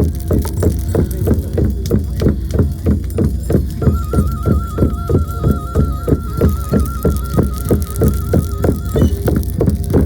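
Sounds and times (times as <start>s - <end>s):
frame drum beaten rhythmically: 0.1s - 10.0s
high wavering flute-like tone: 3.7s - 10.0s.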